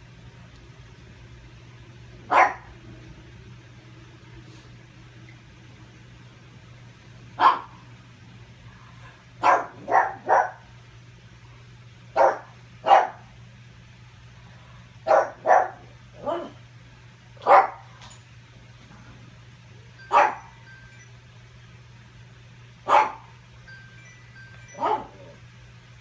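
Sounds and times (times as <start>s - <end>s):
faint low hum: 0.0s - 26.0s
dog barking: 2.3s - 2.7s, 7.4s - 7.8s, 9.4s - 10.6s, 12.2s - 13.3s, 15.0s - 16.6s, 17.4s - 17.9s, 20.1s - 20.5s, 22.9s - 23.3s, 24.8s - 25.2s.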